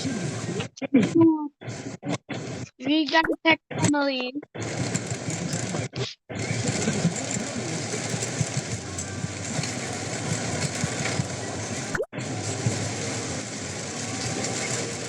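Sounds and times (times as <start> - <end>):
heavy rain on car: 0.0 - 0.6, 4.6 - 5.8, 6.4 - 15.0
road noise inside car: 4.6 - 15.0.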